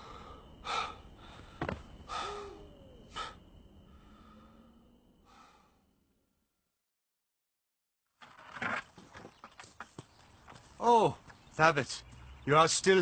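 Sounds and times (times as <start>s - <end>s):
man sighing heavily: 0.0s - 3.4s.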